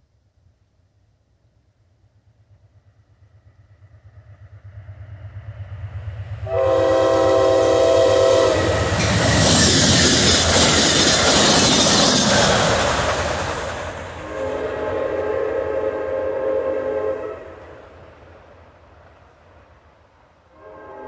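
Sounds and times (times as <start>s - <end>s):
train wheel noise: 2.4s - 21.0s
diesel locomotive rumble: 2.9s - 21.0s
train air horn blast: 6.4s - 9.2s, 14.2s - 17.7s, 20.5s - 21.0s.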